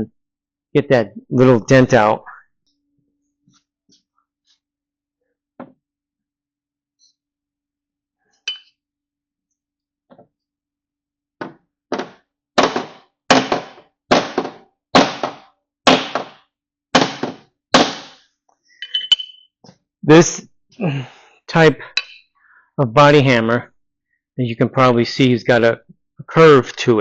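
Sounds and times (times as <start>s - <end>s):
hammer striking sheet metal: 12.0s - 16.4s, 17.0s - 18.2s.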